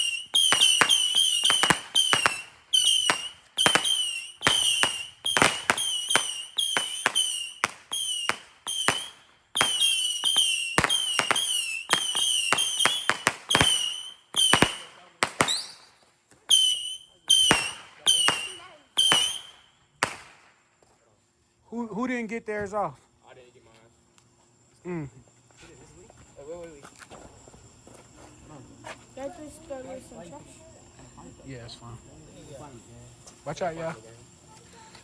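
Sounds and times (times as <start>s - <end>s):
whistling fireworks: 0.0s - 20.7s, 31.4s - 35.0s.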